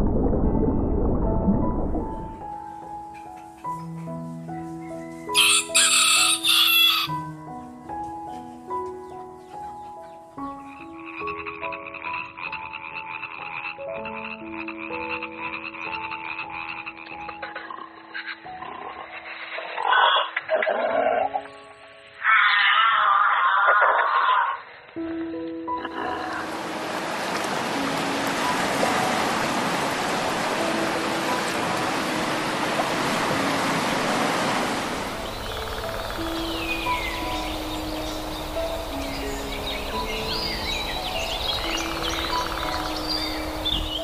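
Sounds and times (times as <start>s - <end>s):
soft background music: 0.0s - 23.6s, 24.8s - 44.0s
frogs trilling chorus: 9.1s - 24.7s, 35.0s - 44.0s
ocean surf on a beach: 26.3s - 35.4s.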